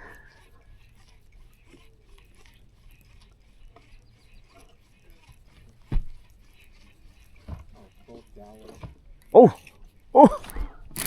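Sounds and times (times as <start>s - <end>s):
fishing reel clicking: 10.3s - 11.0s.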